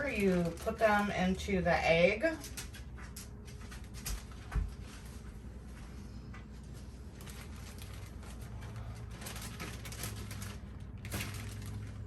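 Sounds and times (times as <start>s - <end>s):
low steady hum: 0.0s - 12.0s
rustling and light ticks of dough handling: 0.0s - 12.0s.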